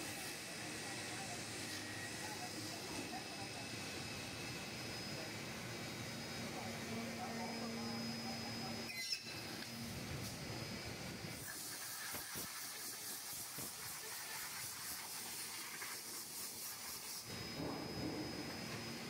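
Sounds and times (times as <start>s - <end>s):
air hissing: 11.3s - 18.2s.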